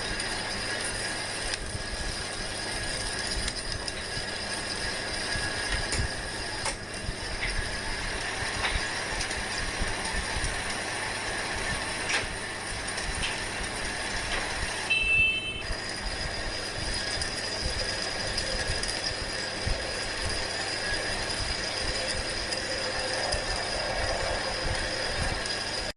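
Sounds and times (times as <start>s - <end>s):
metal lathe rattle and whine: 0.0s - 25.9s
high squeal: 14.9s - 25.9s.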